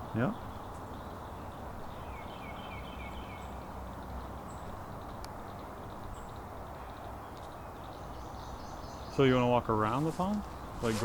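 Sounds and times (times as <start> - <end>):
songbird singing: 0.0 - 11.0
thin high bird calls: 0.1 - 11.0.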